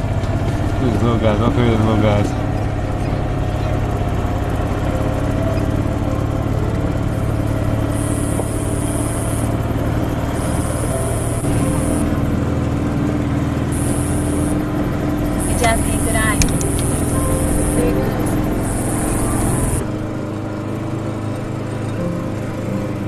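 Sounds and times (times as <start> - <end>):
vehicle engine hum: 0.0 - 23.0
high thin buzz: 7.0 - 12.4, 13.7 - 19.9.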